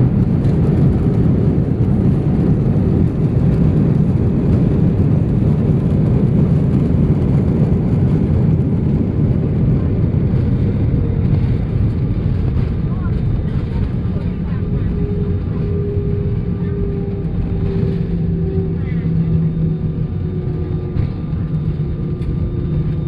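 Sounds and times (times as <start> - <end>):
jet engines reverse thrust rumble: 0.0 - 23.0
wheels rolling on runway: 0.0 - 23.0.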